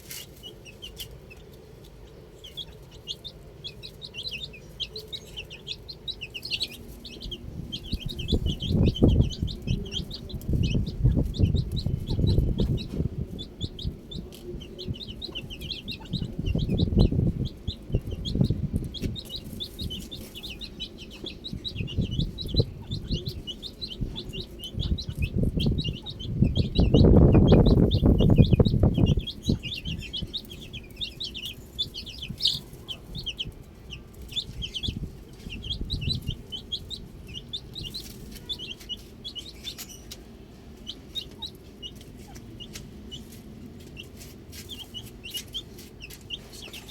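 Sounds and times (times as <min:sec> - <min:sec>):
baby chicks peeping: 0:00.0 - 0:46.9
low rumbling noise: 0:01.4 - 0:42.0.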